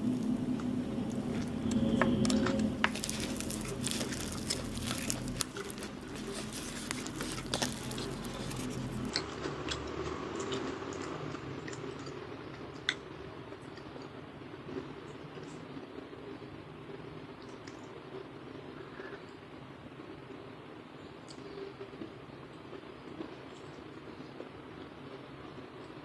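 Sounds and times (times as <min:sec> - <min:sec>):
person chewing food: 0:00.0 - 0:14.1.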